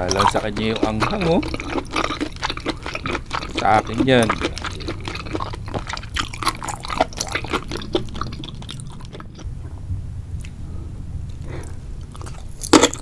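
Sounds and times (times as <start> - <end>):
loud bite: 0.0 - 9.4, 11.6 - 13.0
wet chewing and squishing: 0.0 - 9.5, 11.3 - 13.0
wet mouth clicks: 0.0 - 9.5.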